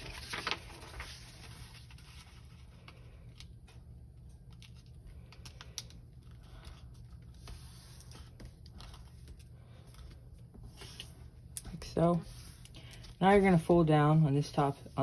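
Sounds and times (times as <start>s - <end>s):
paper rustling: 0.0s - 3.5s.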